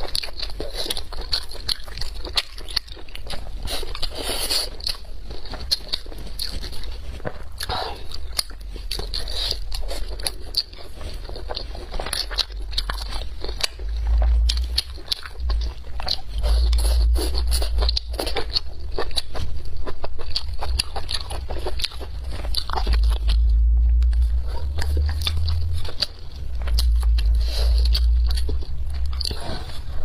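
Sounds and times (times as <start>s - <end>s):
chewing and crunching: 0.0s - 30.0s
low rumble: 6.5s - 30.0s.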